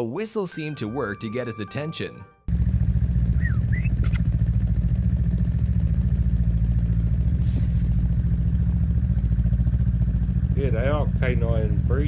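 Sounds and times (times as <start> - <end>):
vehicle engine idling: 2.5 - 12.0
short whistled chirps: 3.4 - 4.2.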